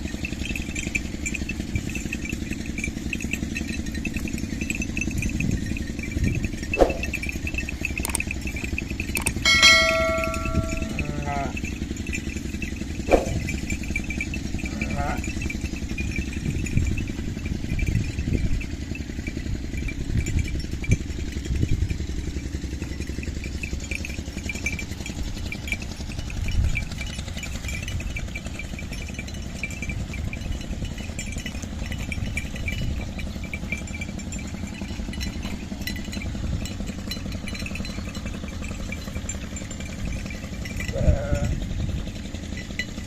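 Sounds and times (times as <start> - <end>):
small engine running: 0.0 - 43.0.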